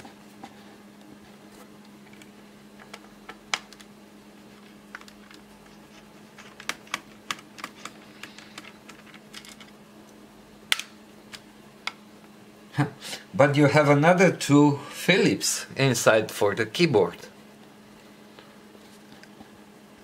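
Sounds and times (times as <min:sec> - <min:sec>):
plastic parts being handled: 0:04.5 - 0:09.8.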